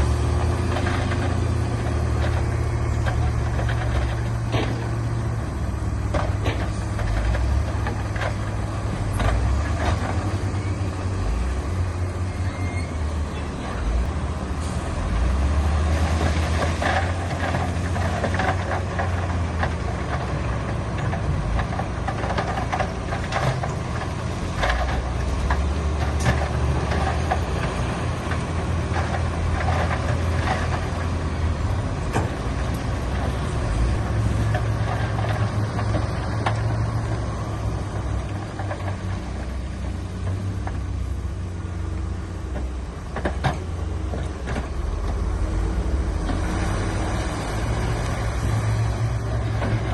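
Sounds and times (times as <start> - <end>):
diesel machinery engine hum: 0.0 - 49.9
knocks and clanks: 0.4 - 5.2, 6.0 - 10.4, 15.8 - 39.5.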